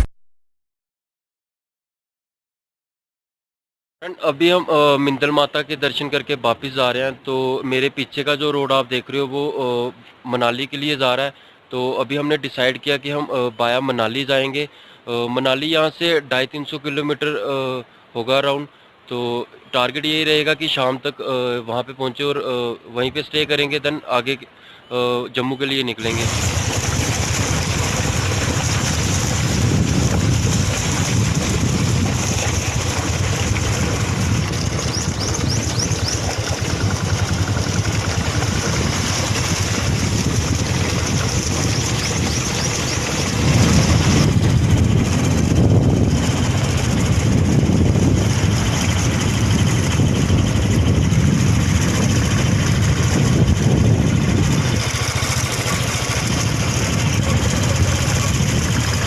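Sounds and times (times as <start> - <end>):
road noise: 22.5 - 59.0
motorcycle engine running: 26.1 - 59.0
wind rushing: 26.2 - 55.0.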